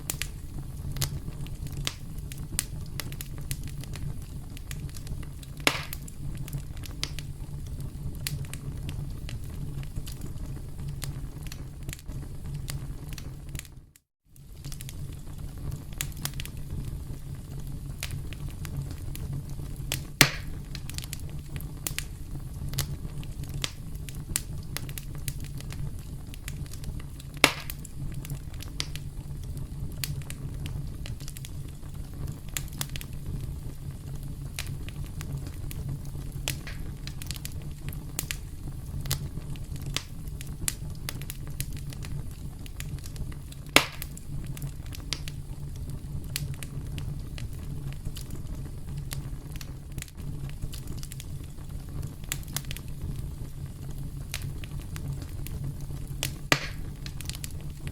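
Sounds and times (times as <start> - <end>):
wood fire crackling: 0.0 - 57.9
loud pops: 5.6 - 6.1, 20.0 - 20.7, 27.4 - 27.9, 36.5 - 37.2, 43.8 - 44.2, 56.5 - 57.3.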